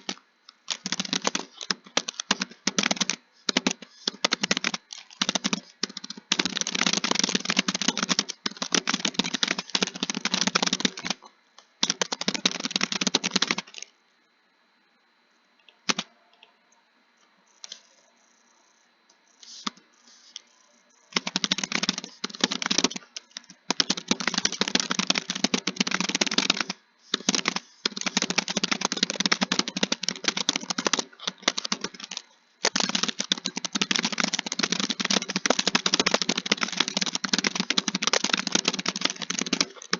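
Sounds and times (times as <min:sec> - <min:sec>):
typing on a keyboard: 0:00.0 - 0:11.2, 0:11.8 - 0:13.9, 0:15.9 - 0:16.5, 0:21.1 - 0:39.9.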